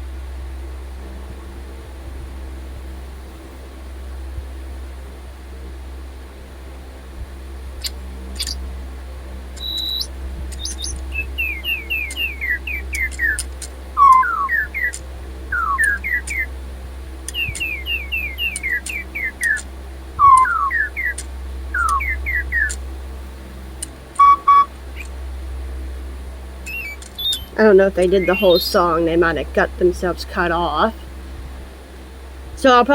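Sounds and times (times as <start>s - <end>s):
electronic toy birds chirping: 7.8s - 8.6s, 9.6s - 16.5s, 17.2s - 22.8s, 24.1s - 25.1s, 26.6s - 31.0s
small clicks: 7.8s - 8.6s, 9.6s - 11.0s, 13.0s - 15.0s, 17.3s - 17.8s, 18.5s - 19.7s, 20.3s - 22.0s, 23.8s - 24.3s, 26.7s - 27.6s.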